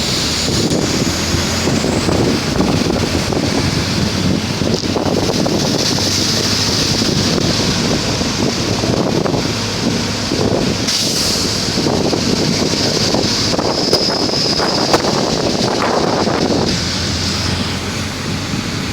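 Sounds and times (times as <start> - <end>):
heavy rain pouring: 0.0 - 18.9.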